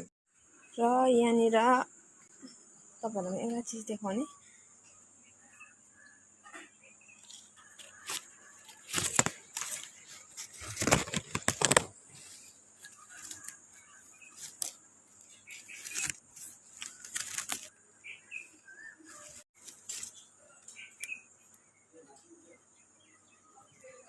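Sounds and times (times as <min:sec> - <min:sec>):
high insect buzz: 0:00.5 - 0:18.6
rustling and crackling: 0:07.2 - 0:13.6, 0:14.4 - 0:17.7.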